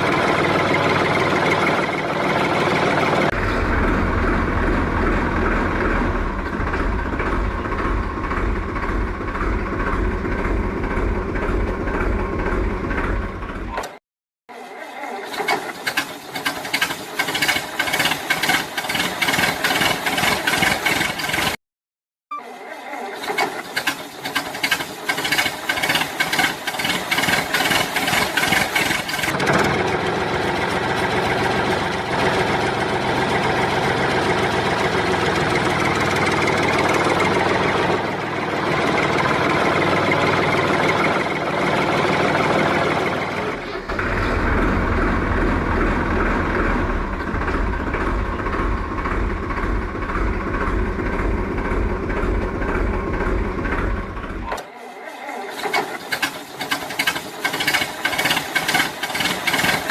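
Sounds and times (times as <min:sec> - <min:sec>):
deep throb: 0:03.3 - 0:13.7, 0:43.4 - 0:54.5.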